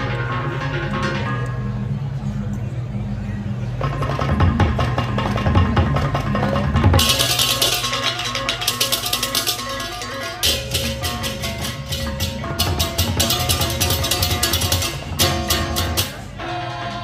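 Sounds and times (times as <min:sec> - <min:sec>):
drums: 0:03.4 - 0:17.0
ringing gong tones: 0:06.2 - 0:17.0.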